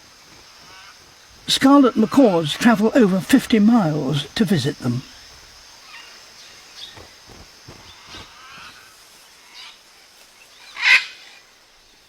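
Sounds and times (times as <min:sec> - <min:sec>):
macaws squawking: 0:00.6 - 0:06.2, 0:07.0 - 0:08.9.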